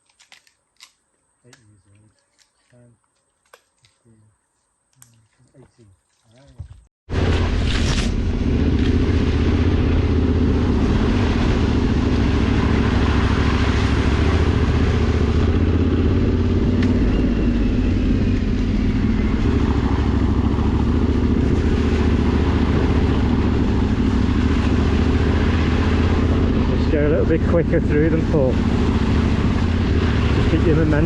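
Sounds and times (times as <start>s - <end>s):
motorcycle engine running: 7.1s - 31.0s.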